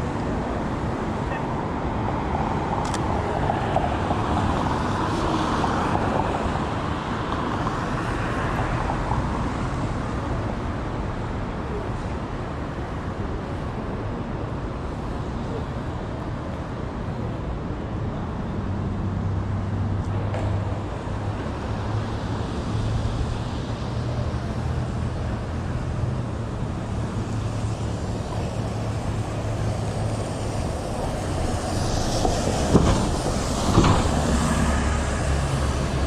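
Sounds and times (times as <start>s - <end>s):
street traffic noise: 0.0s - 36.0s
large vehicle humming past: 19.1s - 36.0s.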